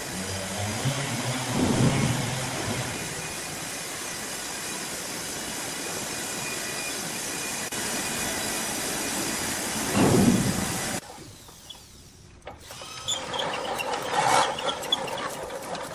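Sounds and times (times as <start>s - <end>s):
low machine surge: 0.0s - 4.4s
sawmill machinery running: 0.0s - 11.6s, 12.4s - 15.9s.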